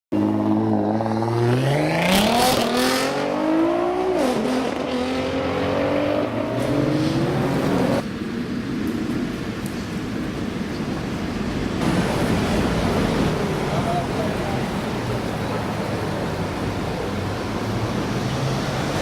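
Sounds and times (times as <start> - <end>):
car engine revving: 0.2 - 8.0.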